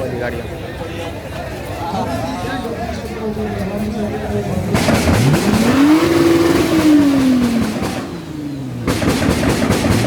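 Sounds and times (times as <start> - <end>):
car engine revving: 4.5 - 10.0.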